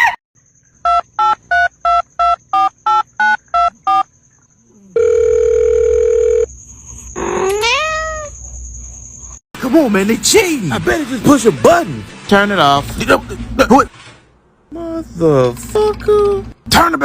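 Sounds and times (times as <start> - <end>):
steady phone tone: 4.9 - 6.5.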